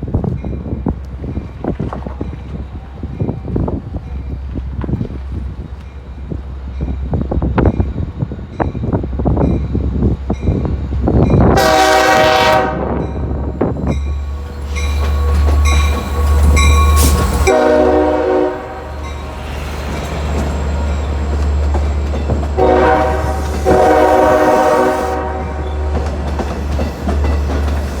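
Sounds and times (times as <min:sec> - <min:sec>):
train rumbling past: 0:00.0 - 0:28.0
train horn blasts: 0:11.4 - 0:13.9, 0:16.5 - 0:19.5, 0:22.6 - 0:26.3
wheels clicking over rail joints: 0:19.0 - 0:23.8, 0:25.4 - 0:28.0.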